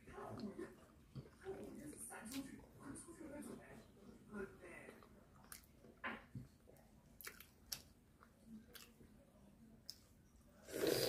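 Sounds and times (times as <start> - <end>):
person chewing food: 0.0 - 2.5, 5.0 - 9.2.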